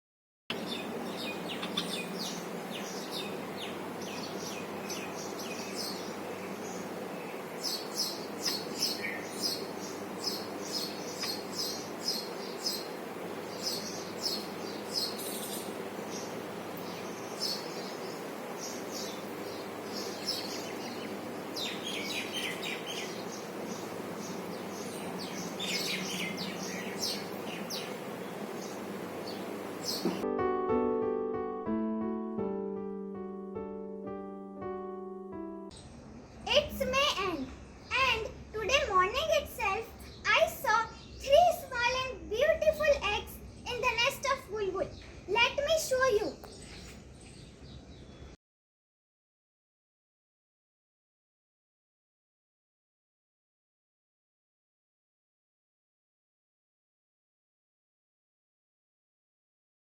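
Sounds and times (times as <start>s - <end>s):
low background hum: 0.5s - 30.2s, 35.8s - 48.4s
small birds chirping: 0.5s - 30.2s, 35.7s - 48.4s.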